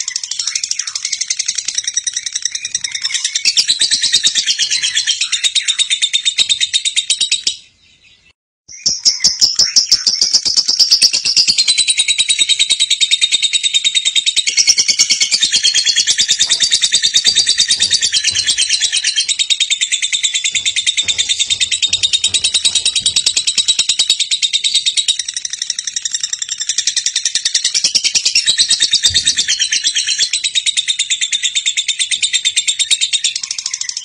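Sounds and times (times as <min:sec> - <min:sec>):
bird trilling chatter: 0:14.0 - 0:26.9.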